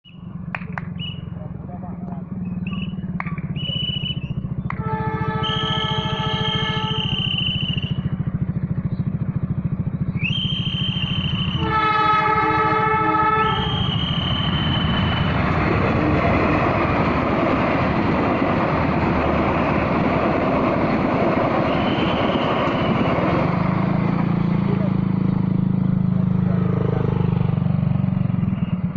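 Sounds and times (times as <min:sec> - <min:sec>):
train running past: 0:00.1 - 0:28.9
train horn: 0:04.7 - 0:07.8, 0:11.5 - 0:16.4, 0:21.7 - 0:23.2.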